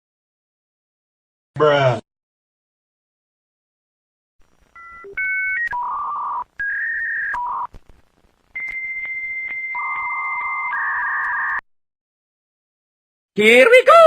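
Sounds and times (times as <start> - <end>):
dial-up modem connecting: 4.5 - 11.6.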